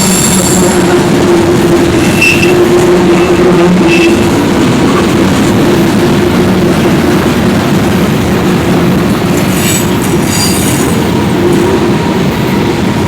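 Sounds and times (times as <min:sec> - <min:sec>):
freight train cars rolling: 0:00.0 - 0:13.0
wheel squeal: 0:09.4 - 0:11.0.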